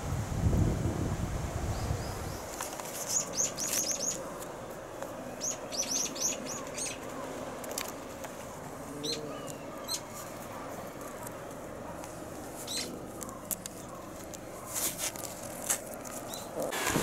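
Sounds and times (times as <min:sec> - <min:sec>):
steady background hiss: 0:00.0 - 0:17.0
small bird chirping: 0:01.8 - 0:04.2, 0:05.4 - 0:07.1, 0:09.0 - 0:10.2, 0:12.6 - 0:14.1.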